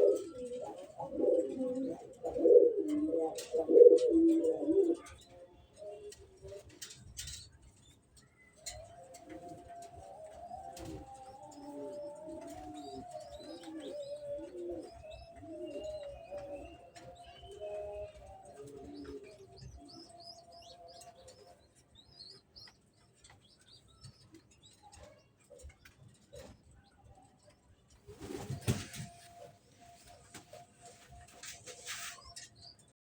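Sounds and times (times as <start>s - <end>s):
pigeons cooing: 0.0s - 7.5s, 8.4s - 27.3s.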